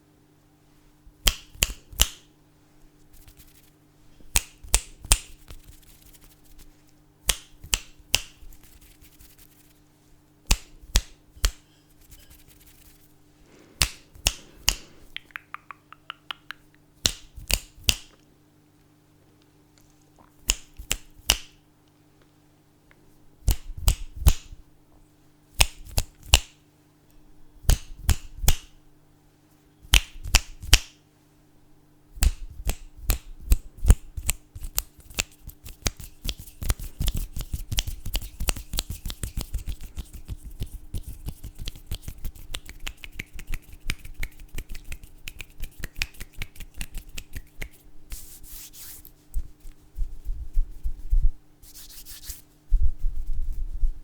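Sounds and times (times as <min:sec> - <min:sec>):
finger snaps: 0:01.2 - 0:02.3, 0:04.3 - 0:06.4, 0:07.2 - 0:08.8, 0:10.4 - 0:11.7, 0:13.8 - 0:18.3, 0:20.2 - 0:21.6, 0:22.9 - 0:24.6, 0:25.6 - 0:26.6, 0:27.7 - 0:28.8, 0:29.9 - 0:31.0, 0:32.2 - 0:48.3.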